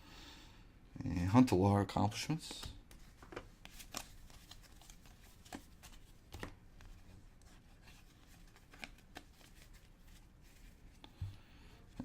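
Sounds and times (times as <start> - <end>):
trading cards flipped: 2.6 - 7.0, 7.9 - 10.2.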